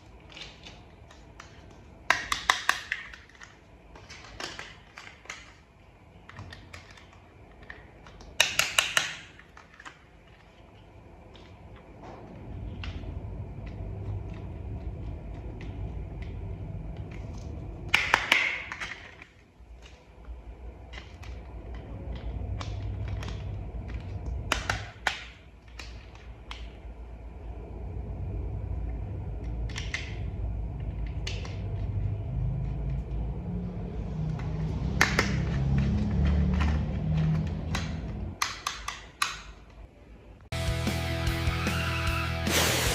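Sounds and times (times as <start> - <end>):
low steady hum: 0.0 - 40.6
plastic toy parts clicking: 0.2 - 11.6, 34.6 - 39.8.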